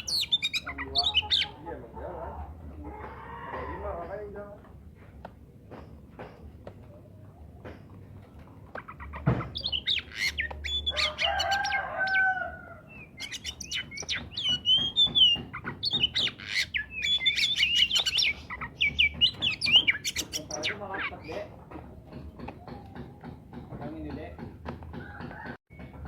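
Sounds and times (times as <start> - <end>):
bird singing whistles and chatter: 0.0 - 1.6, 9.5 - 12.3, 12.9 - 21.5
knock: 21.6 - 26.0.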